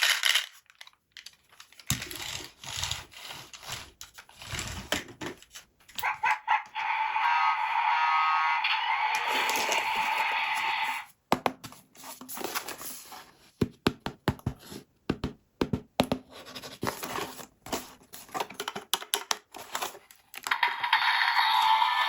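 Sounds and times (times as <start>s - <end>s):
packaging tearing and crinkling: 0.0s - 2.8s.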